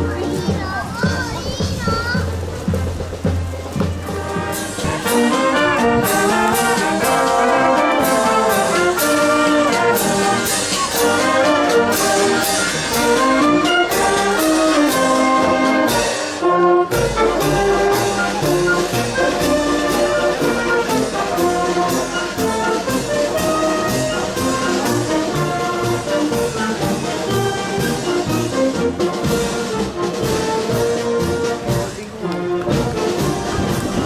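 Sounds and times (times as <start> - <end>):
marching brass band playing: 0.0 - 34.0
steady drum beat: 0.0 - 34.0.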